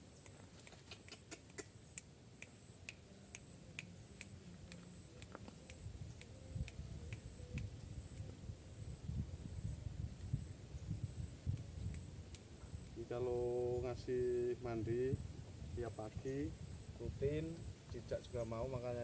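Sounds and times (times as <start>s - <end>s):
sharp clicks: 0.2s - 8.3s.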